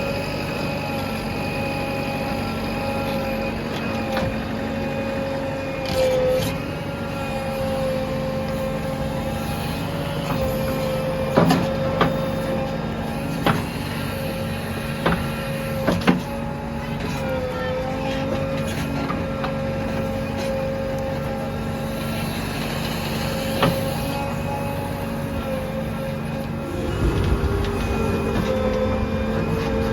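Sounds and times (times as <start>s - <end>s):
diesel engine running: 6.6s - 29.9s.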